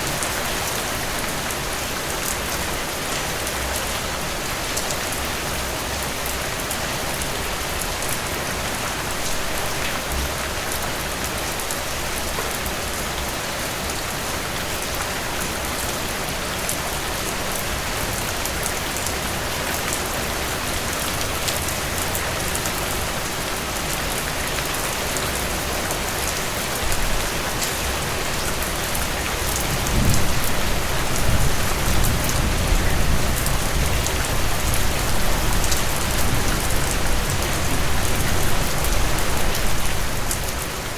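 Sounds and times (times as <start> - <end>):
heavy rain pouring: 0.0 - 40.9
low rumble of thunder: 29.6 - 39.2.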